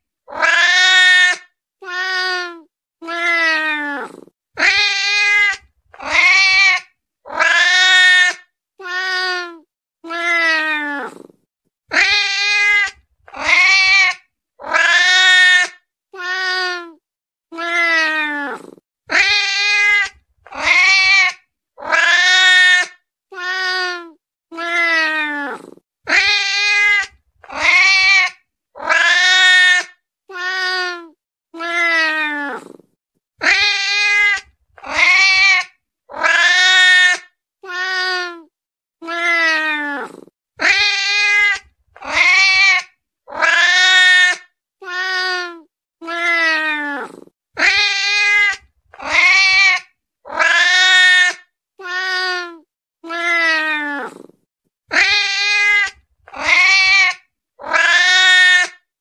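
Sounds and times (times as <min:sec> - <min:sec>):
cat meowing: 0:00.3 - 0:11.2, 0:23.4 - 0:32.8, 0:33.4 - 0:54.3, 0:54.9 - 0:58.7.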